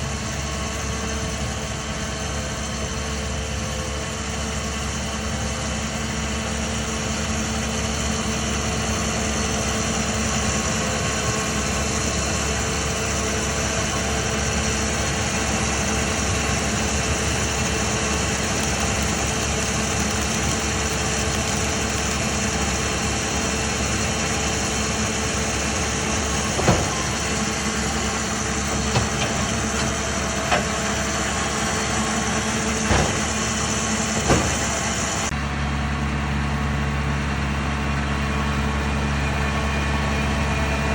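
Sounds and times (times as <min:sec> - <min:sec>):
engine running: 0:00.0 - 0:40.9
sharp knocks: 0:32.8 - 0:33.6, 0:34.2 - 0:34.9.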